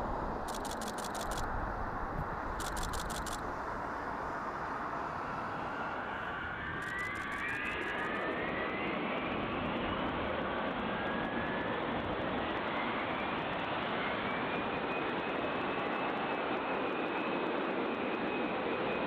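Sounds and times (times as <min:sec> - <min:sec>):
jet engines rushing: 0:00.0 - 0:19.0
whines climbing in pitch: 0:06.4 - 0:08.6.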